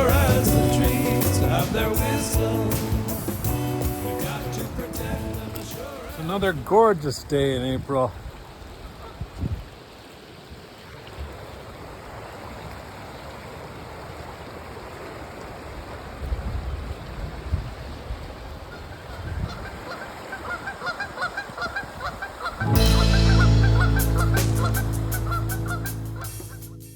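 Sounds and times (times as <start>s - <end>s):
low rumbles: 0.0s - 6.2s, 22.6s - 26.8s
geese honking: 20.4s - 26.8s.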